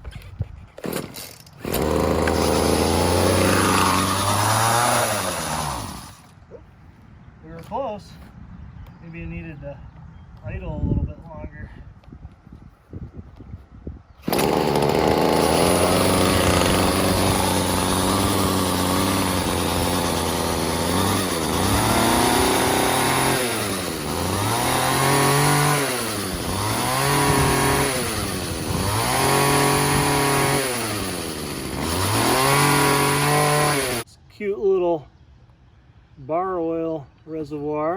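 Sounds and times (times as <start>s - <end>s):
pole saw engine revving: 0.9s - 6.4s, 14.2s - 34.0s.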